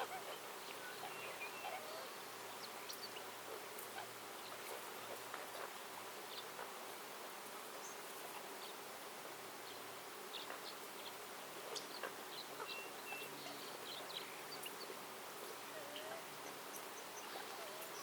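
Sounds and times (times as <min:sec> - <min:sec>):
small birds chirping and whistling: 0:00.0 - 0:05.7, 0:09.6 - 0:15.0, 0:15.7 - 0:18.0
steady hiss: 0:00.0 - 0:18.0.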